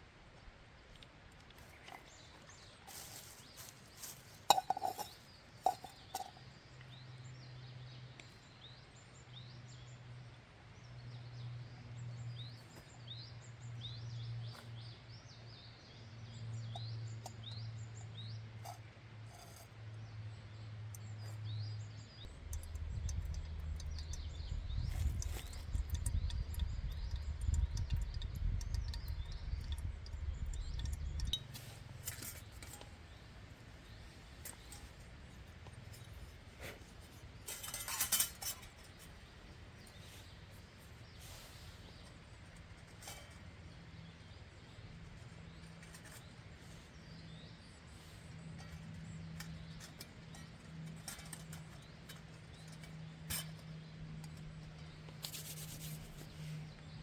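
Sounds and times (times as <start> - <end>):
small birds chirping: 1.5 - 10.1, 10.9 - 57.0
steady low hum: 22.0 - 46.6
deep rumble: 22.3 - 31.4.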